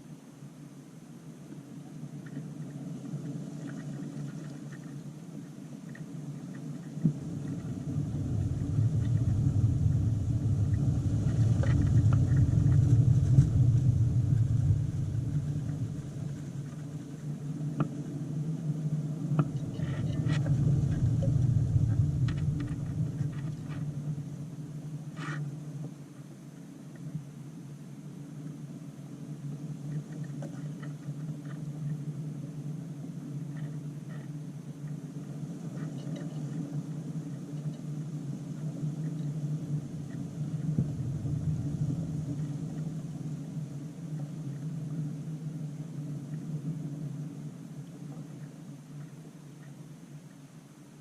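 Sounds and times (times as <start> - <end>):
low rumble: 6.9 - 25.1, 39.4 - 44.6.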